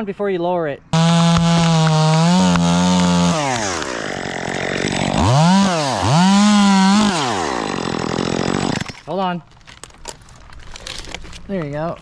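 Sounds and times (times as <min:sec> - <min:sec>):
chainsaw revving: 0:01.0 - 0:09.1.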